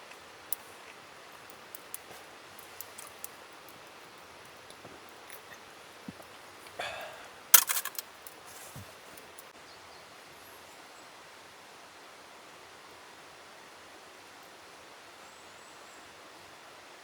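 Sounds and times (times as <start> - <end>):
soft outdoor hiss: 0.0 - 17.0
faint rustles: 0.8 - 9.5.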